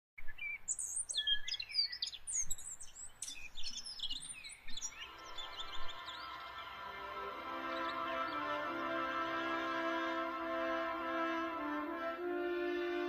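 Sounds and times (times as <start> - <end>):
small birds chirping and singing: 0.2 - 10.3
held musical chord: 5.0 - 13.0.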